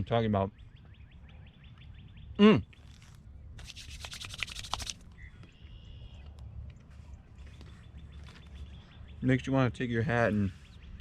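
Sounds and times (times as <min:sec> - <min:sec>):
scratchy rubbing on microphone: 0:02.8 - 0:05.0.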